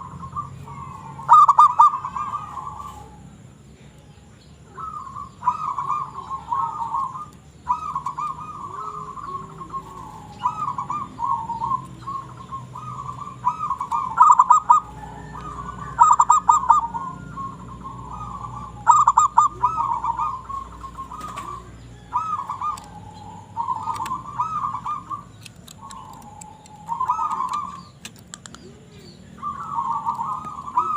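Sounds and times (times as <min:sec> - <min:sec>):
dove cooing trills: 0:00.0 - 0:30.9
sharp clicks: 0:25.1 - 0:28.7.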